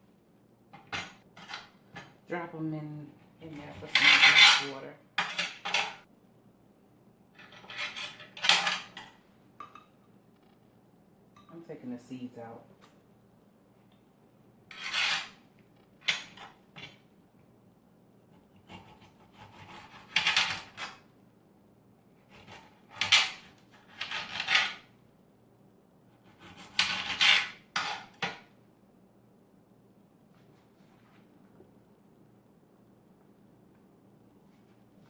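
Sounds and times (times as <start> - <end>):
utensil scraping and clinking on dish: 3.7 - 6.0, 14.7 - 15.4.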